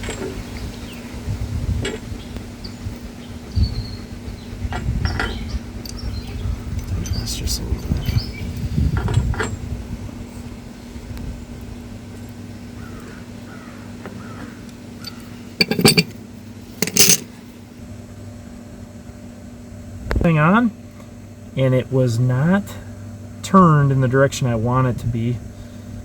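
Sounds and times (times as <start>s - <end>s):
metal fittings scraping: 15.6s - 16.1s, 16.8s - 17.3s
sharp metallic clanks: 15.6s - 16.2s, 16.8s - 17.3s.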